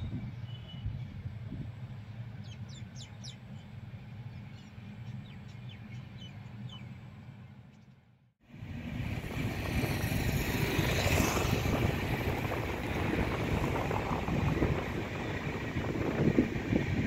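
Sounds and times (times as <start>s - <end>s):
wind noise on microphone: 0.0s - 1.8s, 8.6s - 17.0s
train wheels rumbling on rail: 8.5s - 17.0s.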